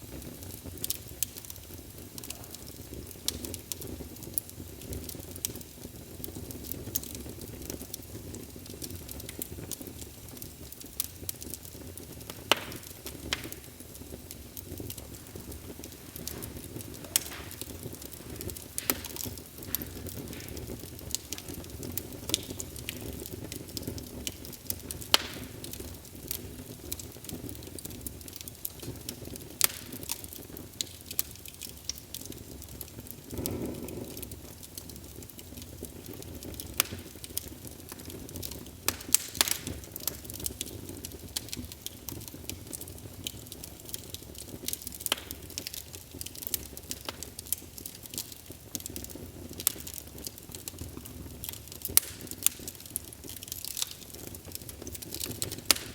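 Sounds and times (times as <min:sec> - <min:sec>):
fire crackles and pops: 0:00.0 - 0:55.9
low rumble of flames: 0:00.0 - 0:55.9
fire whoosh: 0:12.8 - 0:22.5.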